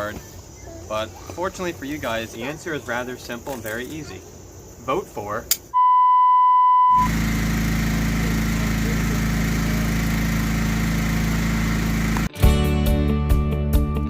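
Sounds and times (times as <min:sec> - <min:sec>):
censor bleep: 0:05.8 - 0:07.1
engine running steadily: 0:07.0 - 0:12.3.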